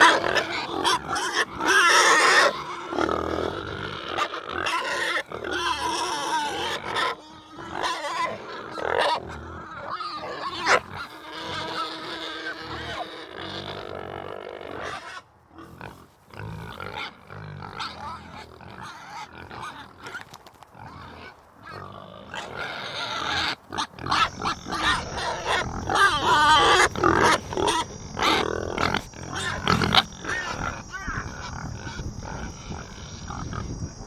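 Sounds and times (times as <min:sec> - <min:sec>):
animal calls: 0:00.0 - 0:17.2, 0:17.8 - 0:34.0.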